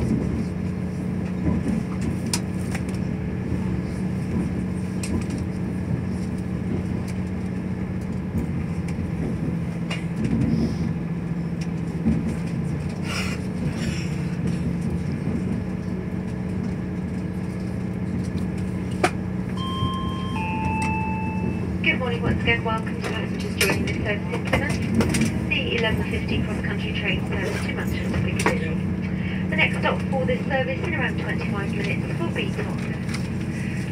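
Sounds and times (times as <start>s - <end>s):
train engine hum: 0.0s - 33.9s
two-note public-address chime: 19.6s - 21.7s.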